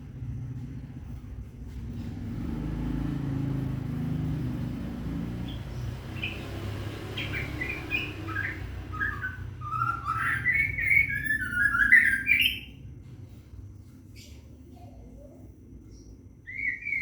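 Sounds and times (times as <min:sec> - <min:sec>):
steady low hum: 0:00.0 - 0:17.0
bird singing warbling notes: 0:05.4 - 0:12.8, 0:16.4 - 0:17.0.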